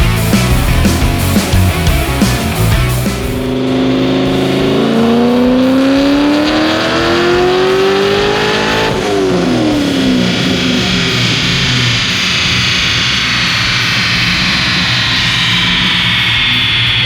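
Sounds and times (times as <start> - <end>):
car engine revving: 0.0 - 17.0
steady rushing hiss: 8.9 - 17.0.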